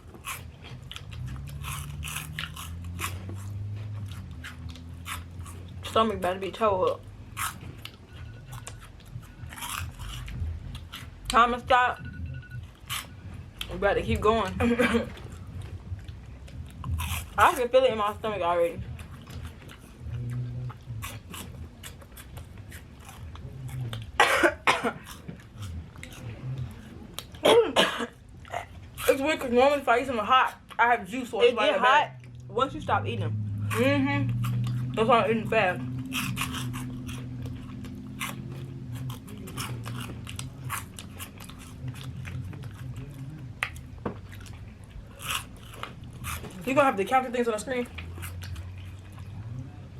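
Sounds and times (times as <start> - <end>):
crunchy chewing: 0.0 - 49.9
person coughing harshly: 24.2 - 25.1, 27.4 - 28.7.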